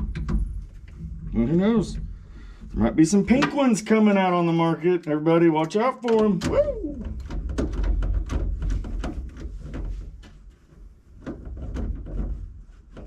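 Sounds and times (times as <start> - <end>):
hardware clicking and knocking: 0.0 - 1.0, 5.6 - 13.0.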